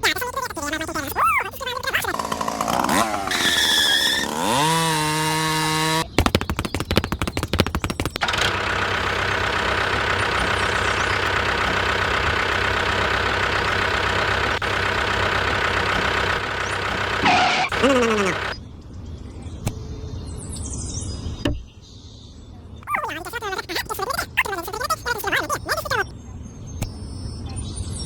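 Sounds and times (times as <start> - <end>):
small engine running: 0.8 - 18.6
rapid clatter: 1.8 - 5.1, 6.0 - 18.6.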